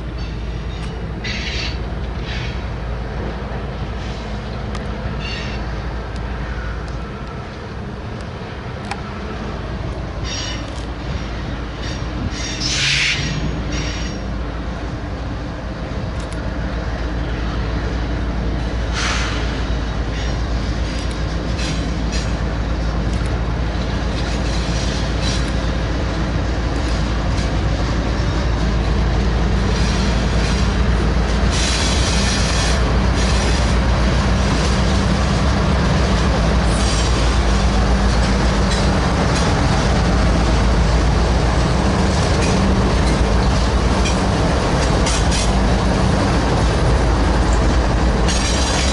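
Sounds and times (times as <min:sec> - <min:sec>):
train rumbling past: 0:00.0 - 0:48.9
wheels squealing on rail: 0:00.2 - 0:02.8, 0:05.2 - 0:05.8, 0:10.2 - 0:14.4, 0:18.9 - 0:22.8, 0:24.1 - 0:25.9, 0:28.3 - 0:35.5, 0:36.2 - 0:40.5, 0:47.4 - 0:48.9.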